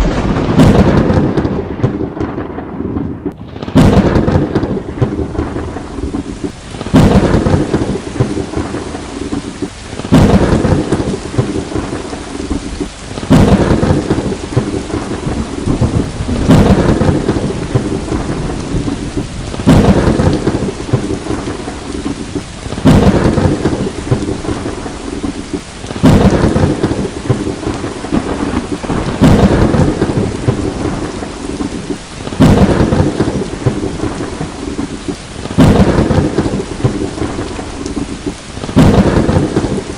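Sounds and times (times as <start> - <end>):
heavy rain: 0.0 - 39.9
thunder cracks and rumbling: 0.0 - 39.9.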